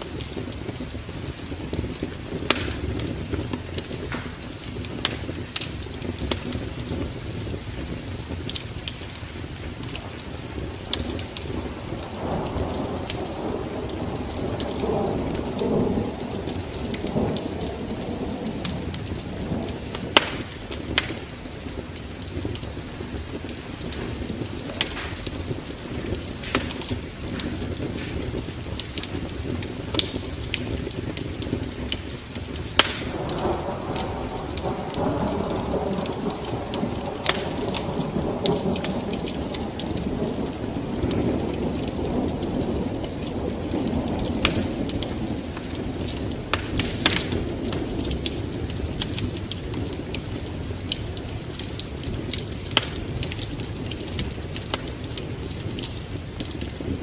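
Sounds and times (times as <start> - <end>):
fire crackling and popping: 0.0 - 57.0
rush of flames: 0.0 - 57.0.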